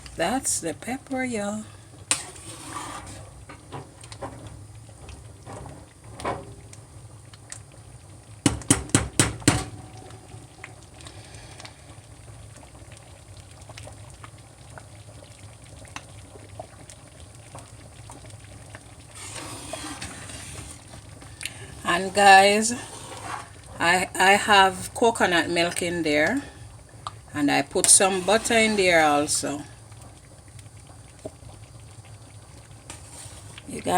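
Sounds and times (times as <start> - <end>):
soup simmering in pot: 0.0 - 33.9
loud knocks against pot: 8.4 - 9.8
utensil stirring and clinking: 19.2 - 23.6.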